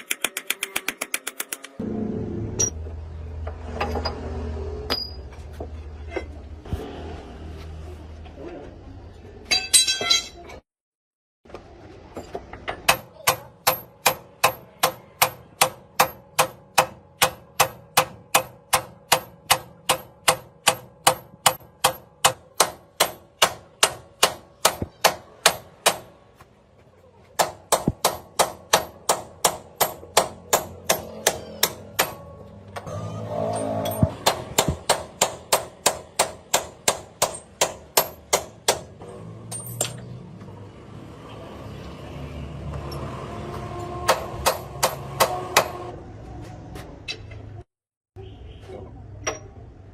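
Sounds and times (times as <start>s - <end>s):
hammer striking metal: 4.9s - 5.3s, 9.5s - 10.4s, 12.6s - 26.2s, 27.4s - 40.1s, 44.0s - 45.9s.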